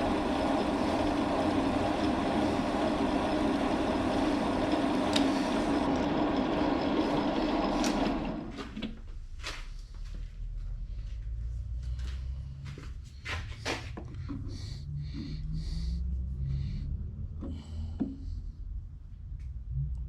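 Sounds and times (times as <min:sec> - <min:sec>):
metal lathe running and spinning down: 0:00.0 - 0:08.7.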